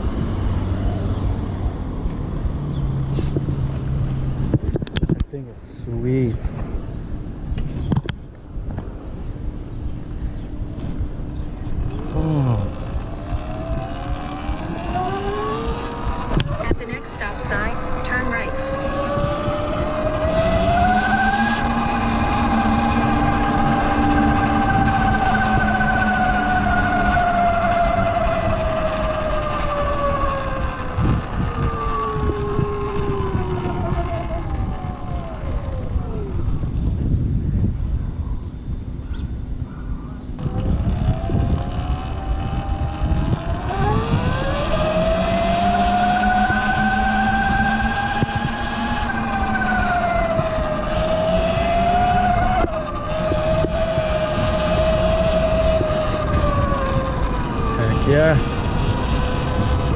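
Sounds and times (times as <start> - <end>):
wind and tyre rumble: 0.0 - 59.9
electric motor whine: 10.8 - 37.3, 40.4 - 59.9.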